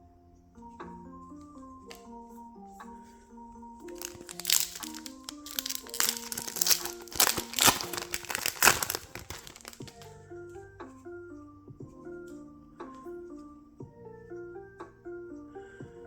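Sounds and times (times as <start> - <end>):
soft background music: 0.0 - 16.0
plastic foil pack crinkling: 3.9 - 10.1.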